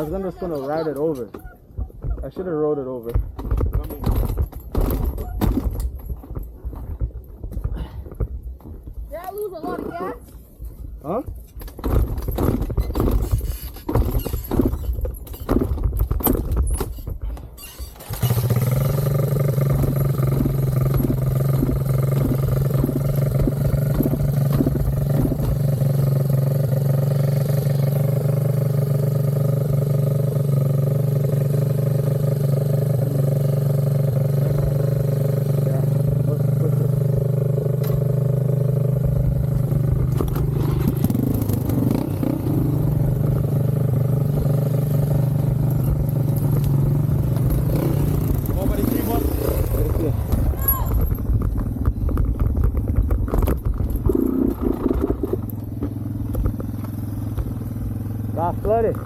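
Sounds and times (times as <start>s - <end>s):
knocks and rustling: 0.6s - 18.3s, 19.7s - 25.8s, 45.4s - 57.6s
motorcycle engine idling: 18.1s - 54.2s, 55.2s - 59.0s.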